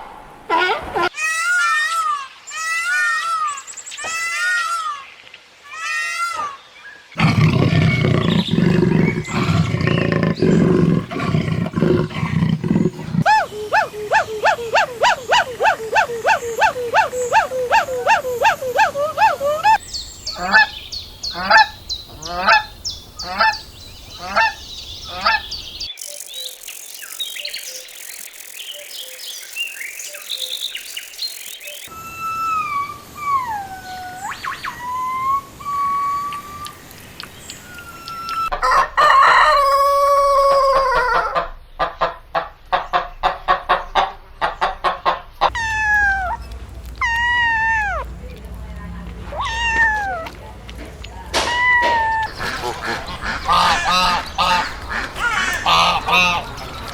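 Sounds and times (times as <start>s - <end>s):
low rough animal call: 7.2s - 13.3s
slow repeated animal calls: 7.2s - 19.8s, 45.4s - 48.2s, 51.5s - 56.9s
chirps: 19.8s - 38.5s, 51.7s - 56.9s
gliding whistle-like calls: 25.3s - 36.9s
repeated honking calls: 51.4s - 56.9s.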